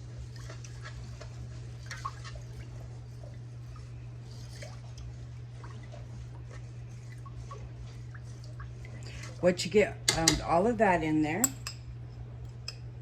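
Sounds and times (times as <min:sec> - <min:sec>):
water sloshing: 0:00.0 - 0:11.0
low steady hum: 0:00.0 - 0:13.0
spoon clinking in a pot: 0:10.1 - 0:10.5, 0:11.4 - 0:11.8, 0:12.5 - 0:12.9.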